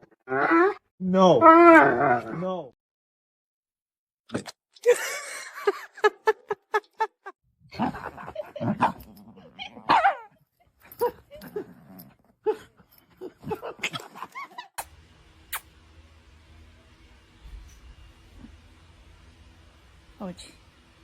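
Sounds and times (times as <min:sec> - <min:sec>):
dog whining: 0:00.0 - 0:00.8, 0:01.4 - 0:02.3
dog barking and yipping: 0:09.8 - 0:10.3.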